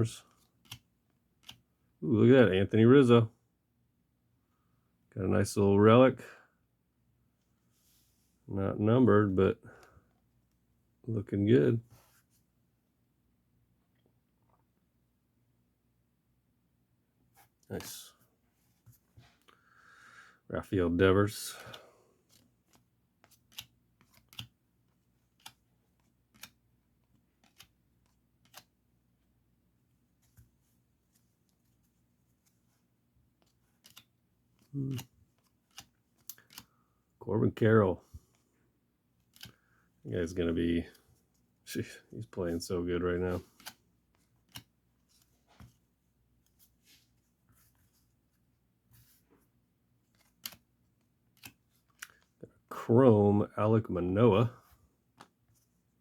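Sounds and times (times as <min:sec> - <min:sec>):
trading cards sliding and rustling: 0:21.3 - 0:28.8, 0:30.1 - 0:36.8, 0:42.5 - 0:52.3
trading cards flipping clicks: 0:22.7 - 0:24.5, 0:33.8 - 0:36.7, 0:39.3 - 0:39.6, 0:50.2 - 0:50.6.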